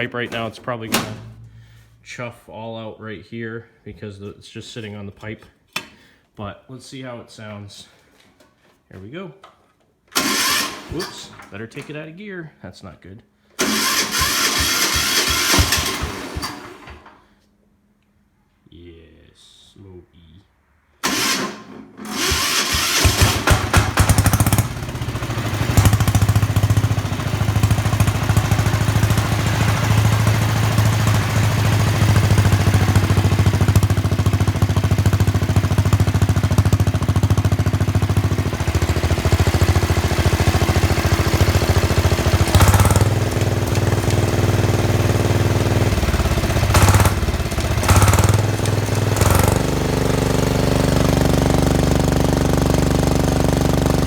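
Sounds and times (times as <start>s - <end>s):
diesel tractor engine running: 13.6s - 16.9s, 22.0s - 54.0s.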